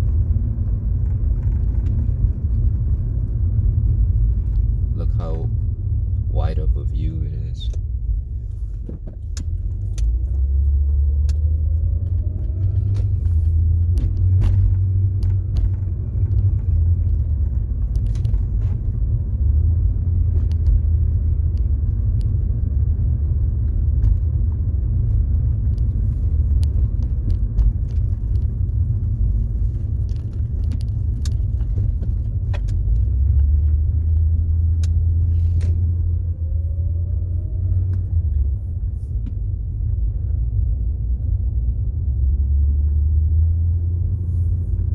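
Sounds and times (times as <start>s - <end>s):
car engine and road rumble: 0.0s - 44.9s
light clicks and rattles: 25.0s - 40.4s.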